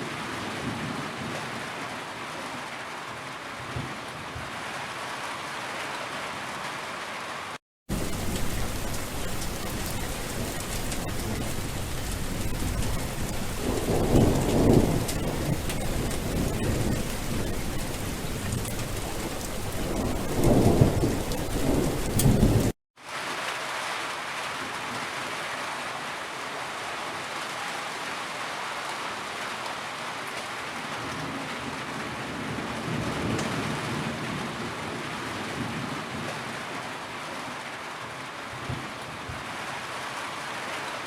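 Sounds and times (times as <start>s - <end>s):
steady rain: 0.0s - 41.0s
thunder rumbling: 7.9s - 22.8s.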